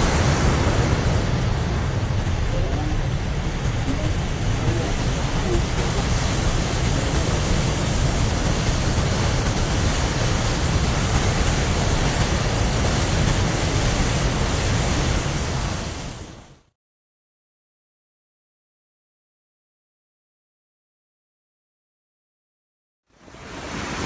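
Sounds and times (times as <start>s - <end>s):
waterfall rushing: 0.0s - 16.4s, 23.2s - 24.0s.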